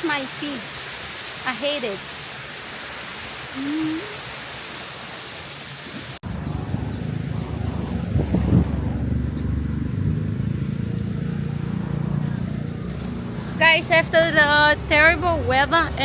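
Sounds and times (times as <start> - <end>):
stream water rushing: 0.0 - 6.4
person humming: 3.6 - 4.2
road traffic rumble: 6.2 - 16.0.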